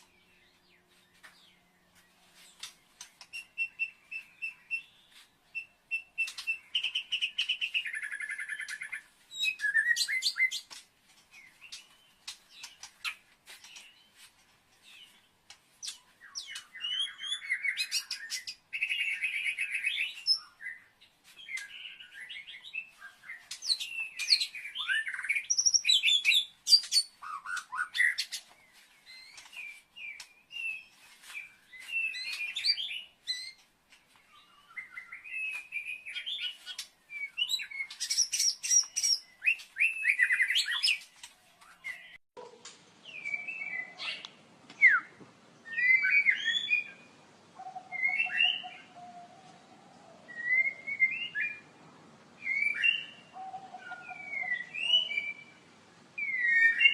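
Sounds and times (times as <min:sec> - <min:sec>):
songbird singing chirps and trills: 0:00.0 - 0:56.9.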